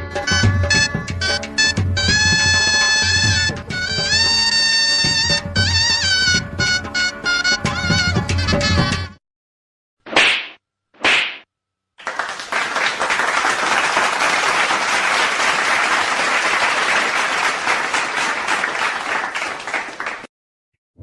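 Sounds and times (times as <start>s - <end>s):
crowd applauding: 12.0s - 20.3s.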